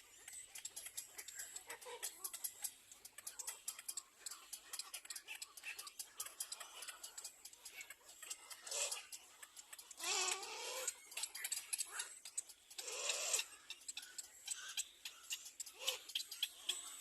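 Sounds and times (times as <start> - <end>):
baby birds chirping: 0.0 - 17.0.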